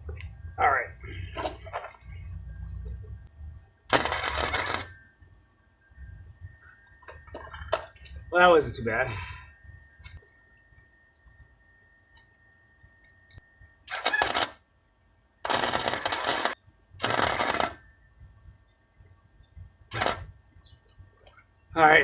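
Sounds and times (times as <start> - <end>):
welding arc crackling: 3.9 - 5.0, 13.8 - 14.6, 15.4 - 17.8, 19.9 - 20.4.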